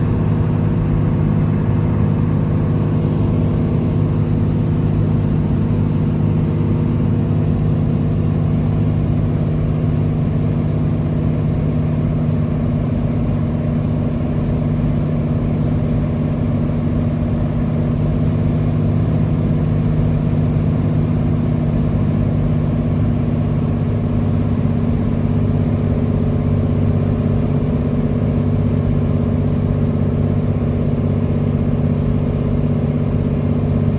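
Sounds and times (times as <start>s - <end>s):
propeller aircraft engine droning: 0.0s - 33.9s.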